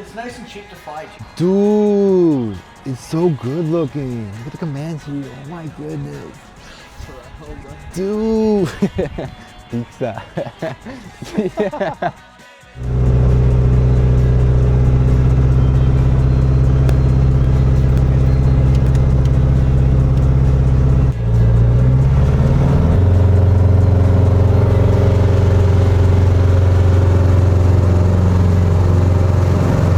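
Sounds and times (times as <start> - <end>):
propeller plane engine droning: 12.8 - 29.9.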